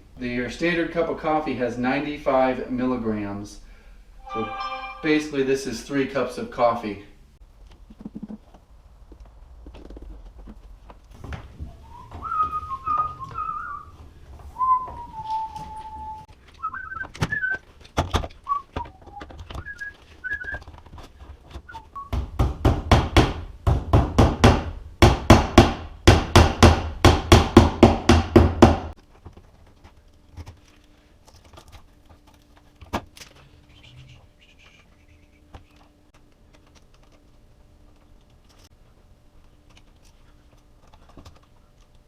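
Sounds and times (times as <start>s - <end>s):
faint steady hum: 0.0s - 27.8s, 29.0s - 42.0s
person whistling a tune: 11.9s - 13.9s, 14.6s - 17.6s, 18.5s - 20.6s
fast sharp knocks: 22.1s - 28.9s.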